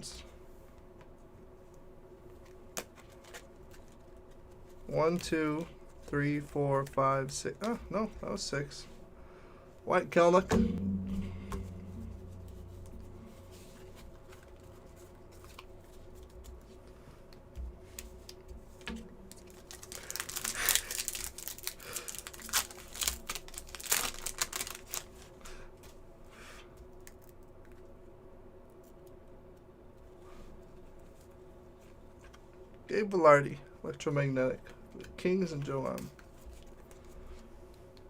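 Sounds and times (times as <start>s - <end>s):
low steady hum: 0.0s - 38.0s
foil wrappers crinkling: 17.9s - 25.4s.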